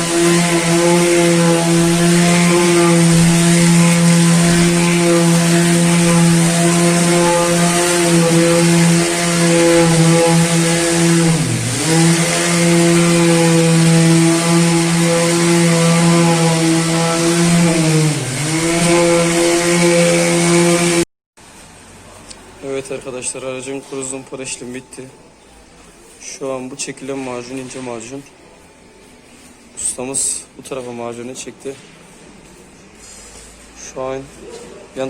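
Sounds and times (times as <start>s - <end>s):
power sander running: 0.0s - 21.0s.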